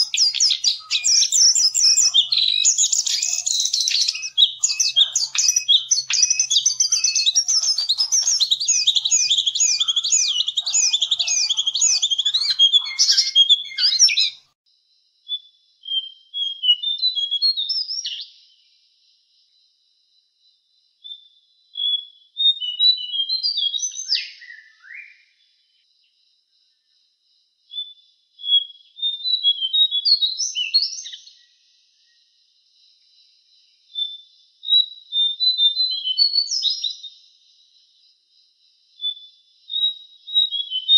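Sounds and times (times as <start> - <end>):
bird warbling song: 0.0 - 14.5.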